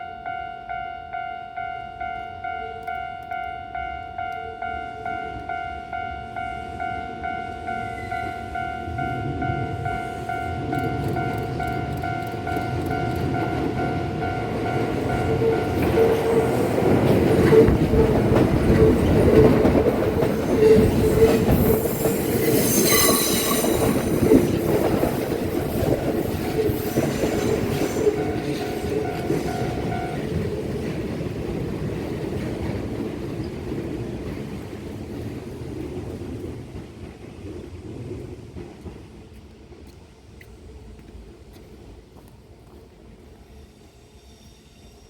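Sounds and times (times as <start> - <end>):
level crossing warning bell: 0.0 - 32.8
train wheels clattering: 10.7 - 37.5
high squeal: 20.4 - 30.2.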